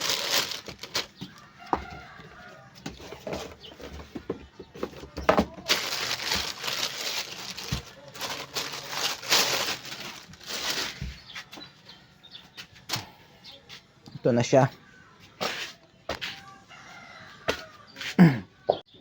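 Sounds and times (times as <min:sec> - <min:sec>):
packaging rustling and crinkling: 0:00.0 - 0:02.1, 0:04.8 - 0:11.6.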